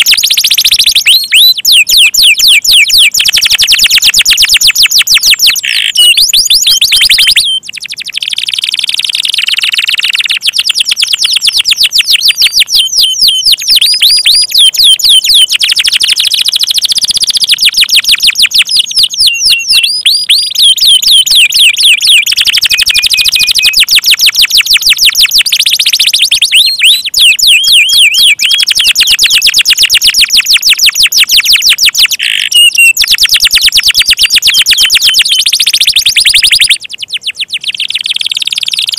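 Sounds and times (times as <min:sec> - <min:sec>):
canaries singing: 0:00.0 - 0:38.9.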